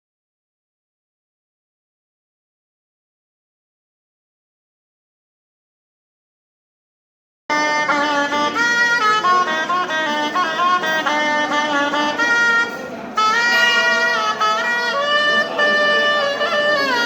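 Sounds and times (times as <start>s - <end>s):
wind instrument melody: 7.5s - 17.0s.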